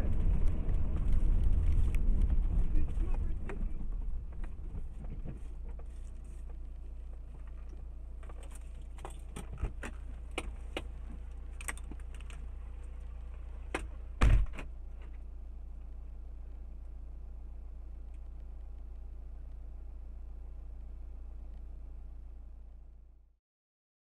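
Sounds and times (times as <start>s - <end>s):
car hum in motion: 0.0s - 23.4s
heavy thump: 14.2s - 14.7s.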